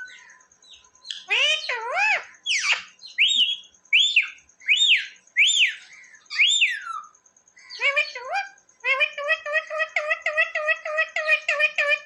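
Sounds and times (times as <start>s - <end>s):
parrot whistled calls: 1.1s - 8.3s.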